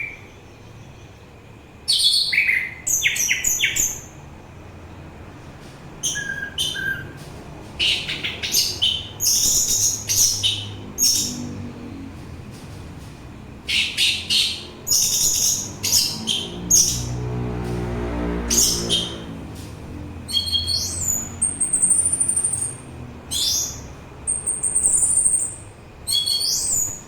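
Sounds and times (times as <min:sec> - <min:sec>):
bird chirping song: 0:00.0 - 0:04.2, 0:06.0 - 0:11.8, 0:13.6 - 0:17.4, 0:18.5 - 0:19.4, 0:20.0 - 0:27.0.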